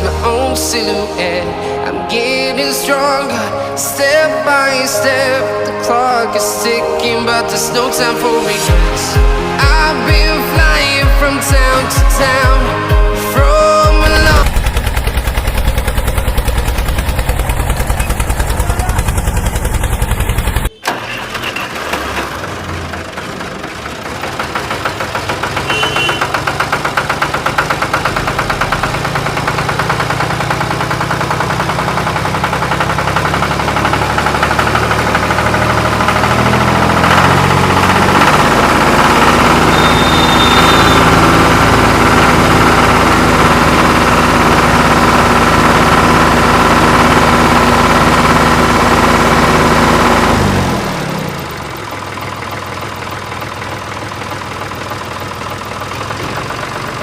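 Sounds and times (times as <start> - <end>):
music: 0.0 - 14.6
engine running with rapid pulse: 0.0 - 57.0.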